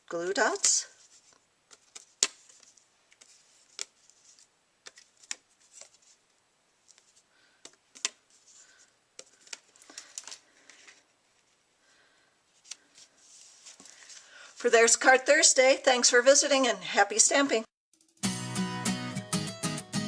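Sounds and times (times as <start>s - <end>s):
paper rustling: 0.5s - 11.6s, 12.5s - 14.5s.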